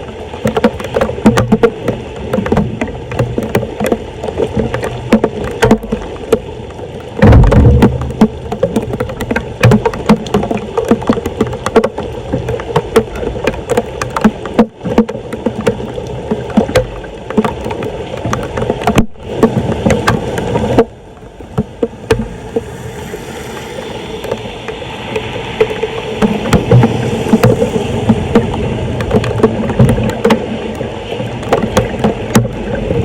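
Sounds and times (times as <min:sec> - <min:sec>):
water splashing and sloshing: 0:00.0 - 0:33.0
sharp knocks and clatters: 0:00.4 - 0:06.5, 0:07.2 - 0:20.9, 0:25.2 - 0:30.8.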